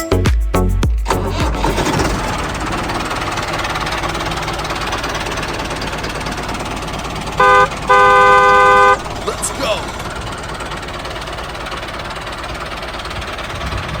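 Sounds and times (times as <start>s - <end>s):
horn honking: 7.3s - 9.9s.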